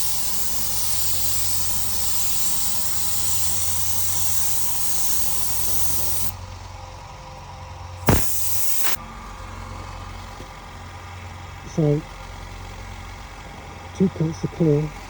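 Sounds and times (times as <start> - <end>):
spray gun hissing: 0.0 - 6.3, 8.1 - 9.0
sudden loud burst: 8.1 - 9.0.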